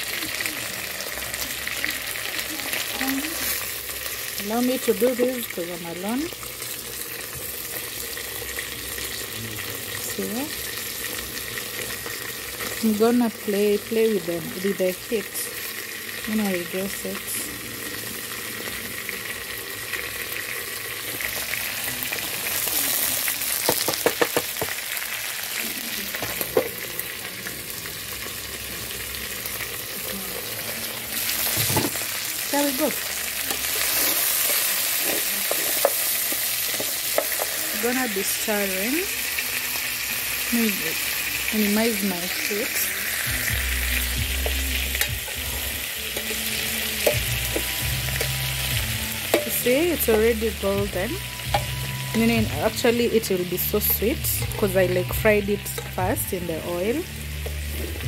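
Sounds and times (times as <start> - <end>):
food sizzling in hot oil: 0.0 - 58.0
knocks of stirring in pan: 19.3 - 25.1, 30.6 - 39.0, 42.8 - 58.0.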